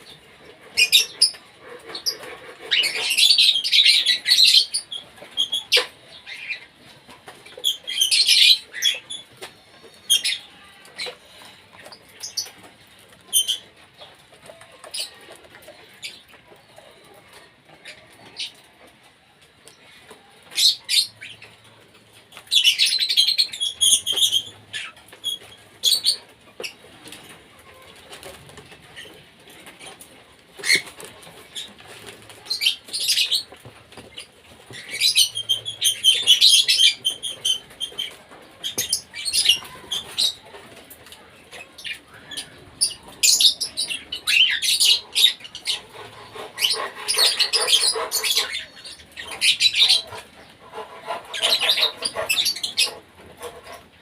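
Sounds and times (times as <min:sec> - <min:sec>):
cockatiels chirping and screeching: 0:00.0 - 0:06.7, 0:07.3 - 0:09.4, 0:22.5 - 0:28.4, 0:29.0 - 0:40.8, 0:41.5 - 0:53.9.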